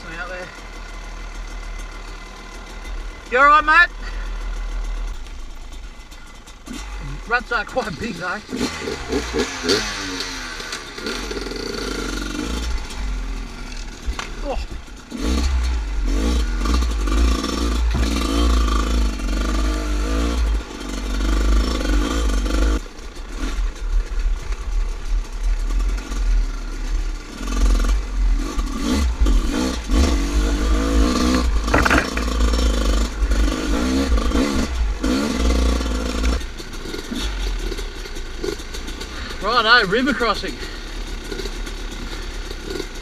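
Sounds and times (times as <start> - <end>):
dirt bike engine revving: 0.0 - 24.0, 24.6 - 43.0.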